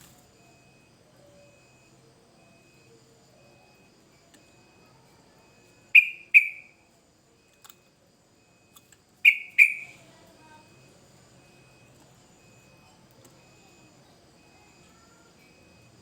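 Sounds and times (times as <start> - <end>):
bird whistled calls: 6.0 - 6.7, 9.3 - 10.0.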